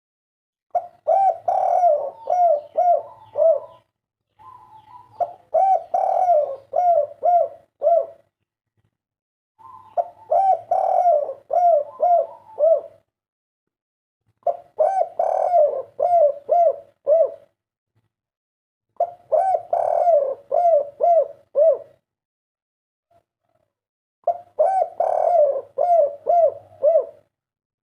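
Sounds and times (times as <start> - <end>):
dove cooing: 0.7 - 8.3, 9.6 - 13.1, 14.4 - 17.5, 19.0 - 22.0, 23.1 - 27.3.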